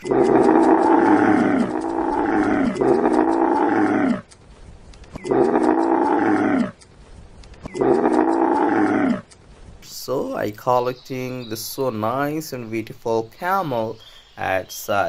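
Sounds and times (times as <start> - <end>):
camel calling: 0.0 - 4.4, 5.1 - 6.9, 7.6 - 9.4.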